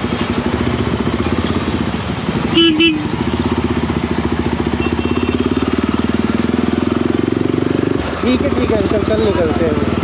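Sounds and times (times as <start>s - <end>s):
motorcycle engine running: 0.0s - 10.0s
vehicle horn beeps: 4.8s - 5.5s.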